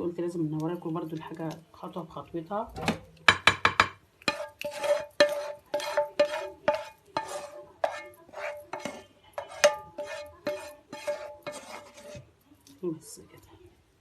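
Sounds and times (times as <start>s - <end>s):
metal spoon scraping a pot: 3.7s - 12.3s.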